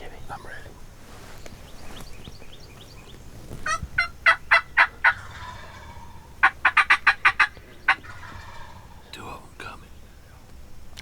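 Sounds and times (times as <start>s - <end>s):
turkey gobbling: 1.8s - 9.2s.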